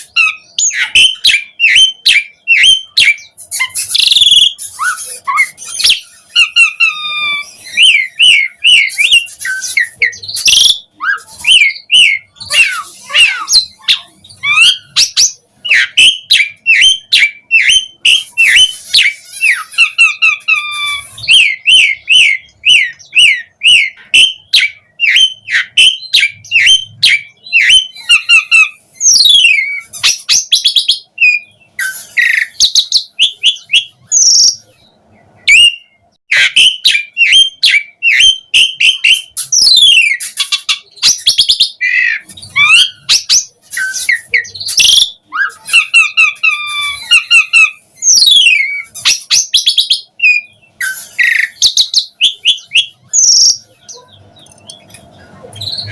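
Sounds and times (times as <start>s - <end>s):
starling singing: 0.0s - 55.9s.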